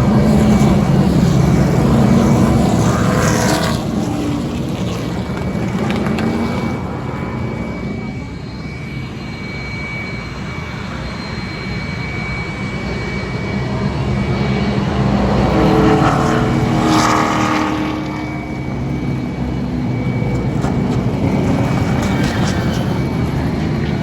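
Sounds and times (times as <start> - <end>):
vehicle passing by: 0.0 - 7.8, 14.3 - 24.0
vehicle engine rumble: 0.0 - 24.0.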